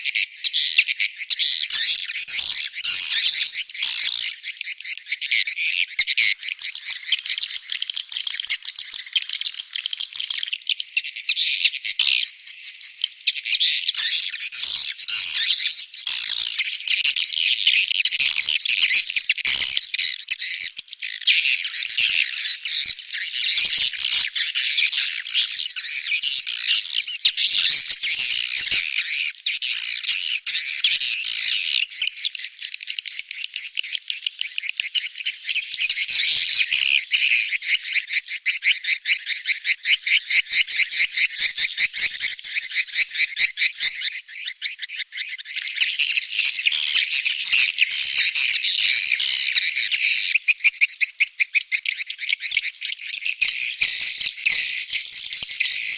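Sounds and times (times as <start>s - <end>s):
high-pitched bird twittering: 13.2s - 55.9s.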